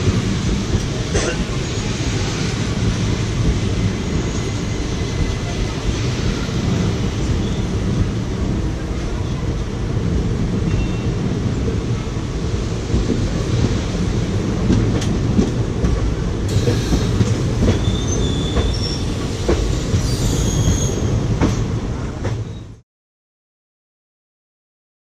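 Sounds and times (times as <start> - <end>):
train wheels rumbling on rail: 0.0 - 22.8
high wheel squeals: 16.5 - 21.2.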